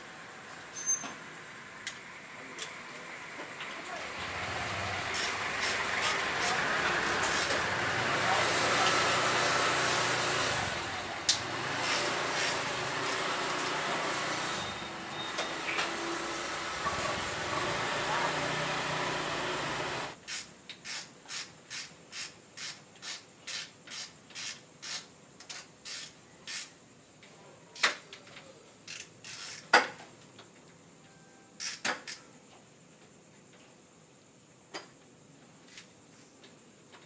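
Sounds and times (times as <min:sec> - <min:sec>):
ratchet wrench clicking: 0:05.1 - 0:06.6, 0:20.2 - 0:26.8, 0:28.8 - 0:29.8, 0:31.6 - 0:32.2.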